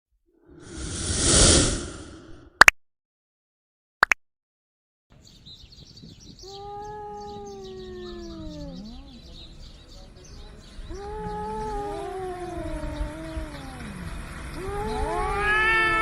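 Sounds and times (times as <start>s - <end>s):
birds chirping: 5.1s - 16.0s
cats yowling: 6.4s - 9.7s, 10.9s - 16.0s.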